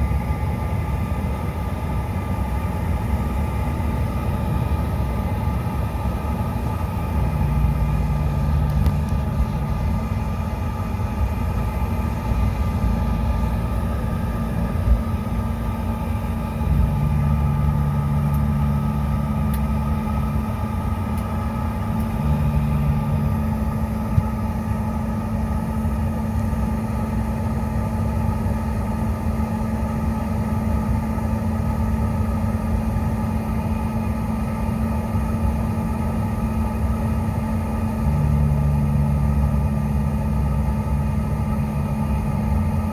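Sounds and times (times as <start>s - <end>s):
low hum: 0.0s - 29.3s
jet engines idling in cabin: 0.0s - 42.9s.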